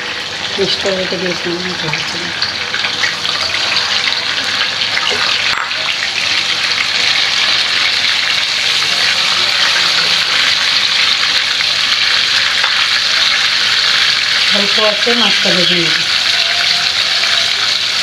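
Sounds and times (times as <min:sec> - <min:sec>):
shrimp sizzling in hot oil: 0:00.0 - 0:18.0.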